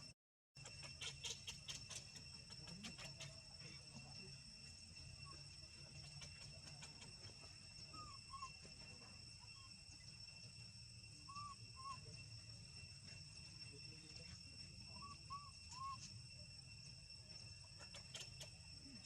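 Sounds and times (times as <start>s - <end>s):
faint short chirping calls: 0.6s - 3.9s, 5.2s - 10.1s, 11.3s - 12.4s, 13.6s - 16.2s, 17.3s - 19.0s
faint high-pitched drone: 2.1s - 19.0s.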